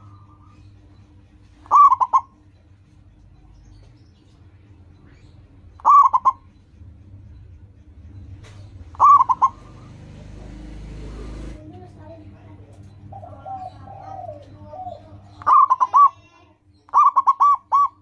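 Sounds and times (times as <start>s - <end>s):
dove cooing: 1.4s - 2.4s, 5.2s - 6.6s, 8.5s - 11.6s, 13.0s - 16.3s, 16.9s - 18.0s.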